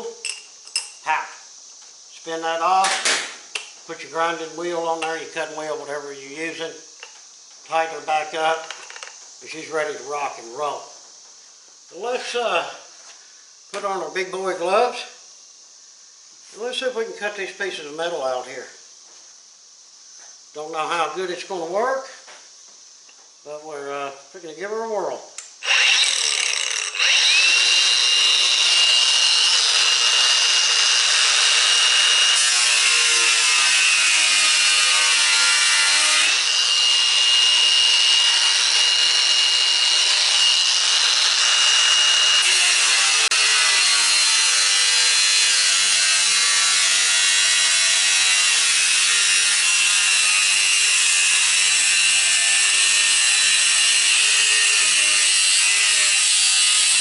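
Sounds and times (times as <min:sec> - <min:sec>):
angle grinder cutting metal: 0:25.6 - 0:57.0.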